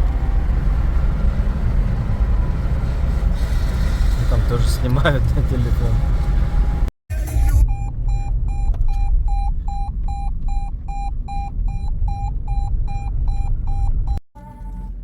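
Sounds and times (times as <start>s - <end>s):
vehicle low rumble: 0.0s - 15.0s
car warning chime beeping: 7.4s - 14.2s.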